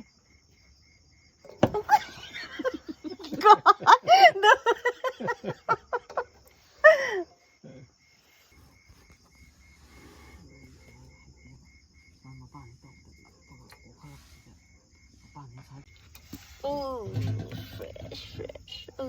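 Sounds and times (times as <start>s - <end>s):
insect chirping: 0.0s - 19.0s
woman laughing: 1.7s - 7.8s.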